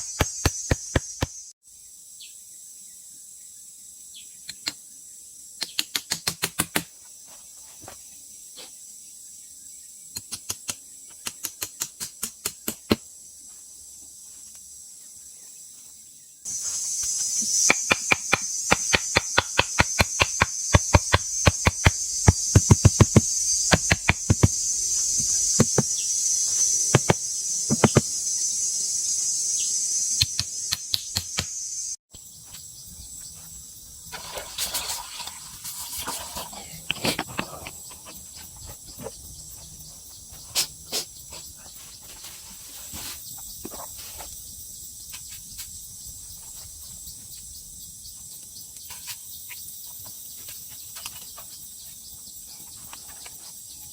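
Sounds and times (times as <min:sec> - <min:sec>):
insects buzzing: 0:00.0 - 0:53.9
sharp knocks: 0:17.7 - 0:24.6, 0:25.6 - 0:25.9, 0:26.9 - 0:28.1.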